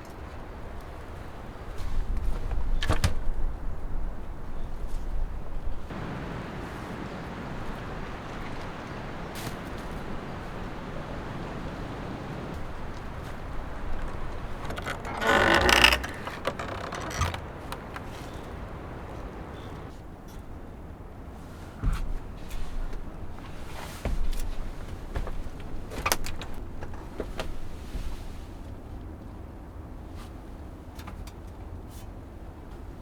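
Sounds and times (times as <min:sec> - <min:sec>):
strong wind rushing: 0:05.9 - 0:14.8
grating creak: 0:12.5 - 0:19.9.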